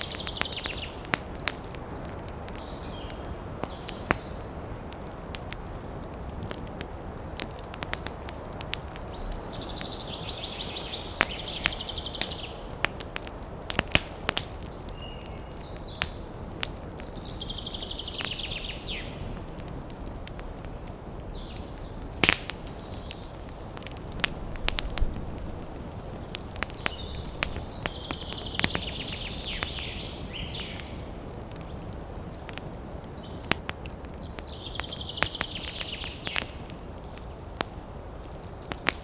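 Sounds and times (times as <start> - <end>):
campfire crackling and popping: 0.0 - 39.0
wind in the trees: 0.0 - 39.0.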